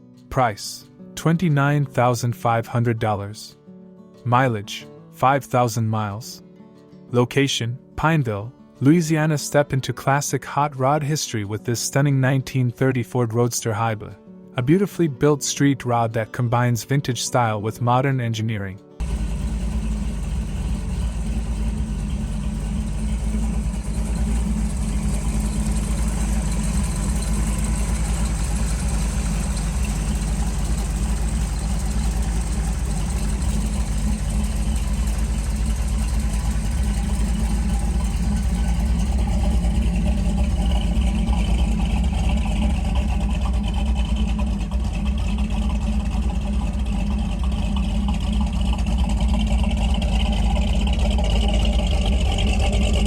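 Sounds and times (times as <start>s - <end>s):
car engine running: 19.0s - 53.0s.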